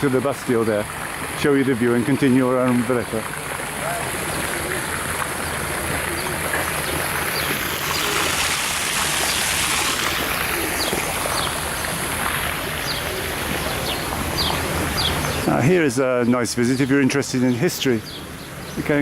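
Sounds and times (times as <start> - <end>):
bird chirps: 12.8 - 15.6.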